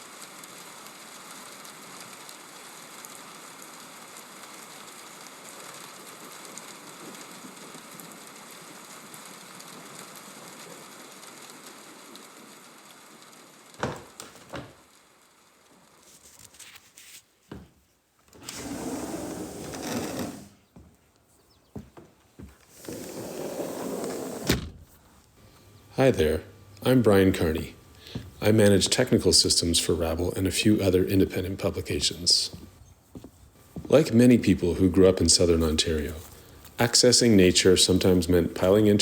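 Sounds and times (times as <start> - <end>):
steady rain: 0.0 - 16.1.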